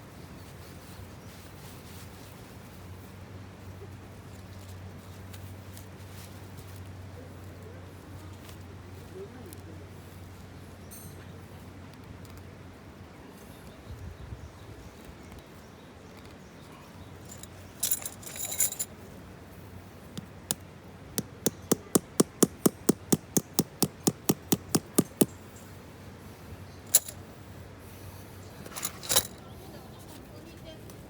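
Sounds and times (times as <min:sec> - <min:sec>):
metallic jingle: 0:17.2 - 0:18.9, 0:26.9 - 0:27.2, 0:28.7 - 0:29.4
sharp taps: 0:21.2 - 0:25.3.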